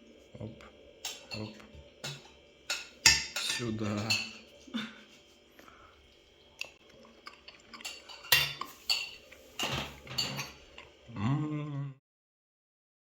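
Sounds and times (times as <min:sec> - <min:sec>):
cutlery and plates clinking: 0:01.0 - 0:04.6, 0:07.2 - 0:11.0.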